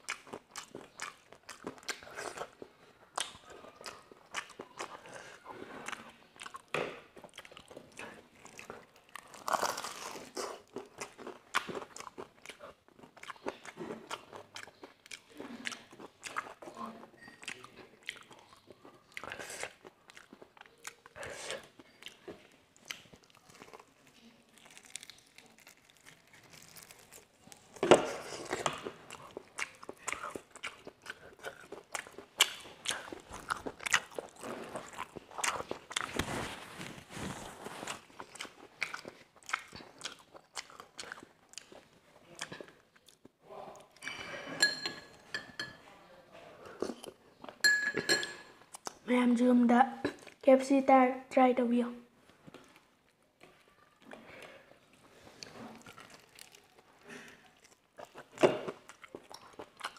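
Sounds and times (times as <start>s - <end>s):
crunching fried chicken: 0.0s - 16.8s, 17.4s - 43.3s, 55.7s - 59.9s.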